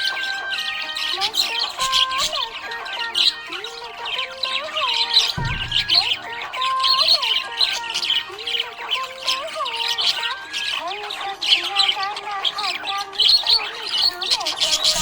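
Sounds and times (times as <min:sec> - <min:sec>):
budgerigars chattering and squawking: 0:00.0 - 0:15.0
short low thump: 0:05.4 - 0:06.3.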